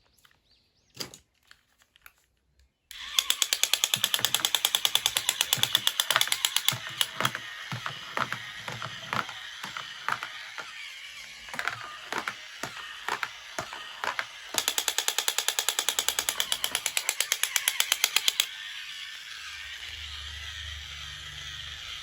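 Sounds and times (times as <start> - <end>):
toy packaging handling: 1.3 - 14.9
rapid clicks: 2.9 - 18.5.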